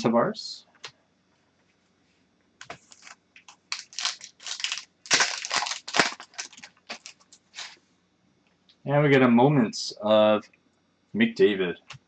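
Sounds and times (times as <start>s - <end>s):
card pack wrapper crinkling: 2.6s - 7.8s.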